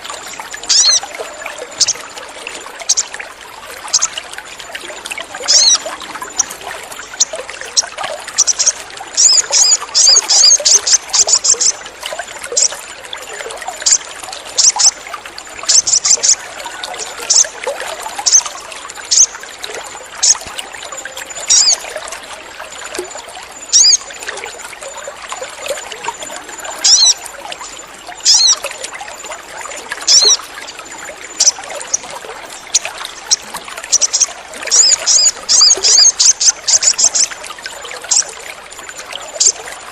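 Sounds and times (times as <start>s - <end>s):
trickle of running water: 0.0s - 39.9s
bird chirping and chattering: 0.7s - 1.1s, 1.8s - 2.0s, 2.9s - 3.1s, 3.9s - 4.1s, 5.4s - 6.6s, 7.2s - 11.8s, 12.5s - 12.8s, 13.8s - 15.0s, 15.7s - 17.5s, 18.2s - 19.4s, 20.2s - 21.8s, 23.7s - 24.1s, 26.8s - 27.2s, 28.2s - 28.6s, 30.0s - 30.4s, 31.3s - 37.3s, 38.1s - 38.3s, 39.3s - 39.6s.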